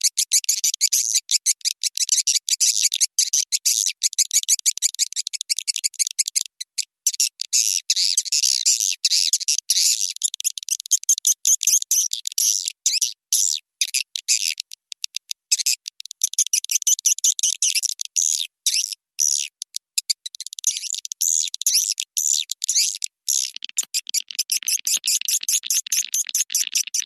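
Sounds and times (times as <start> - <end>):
swiftlets twittering: 23.4 - 27.0.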